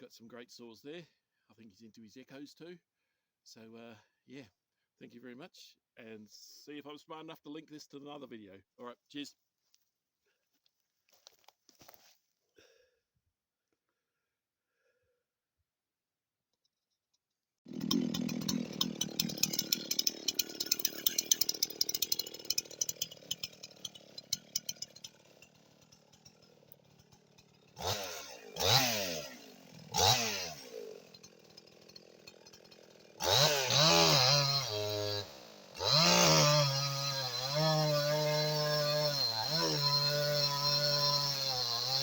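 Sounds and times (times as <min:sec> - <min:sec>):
chainsaw clattering rattle: 0:17.7 - 0:36.2
chainsaw revving: 0:17.7 - 0:42.0.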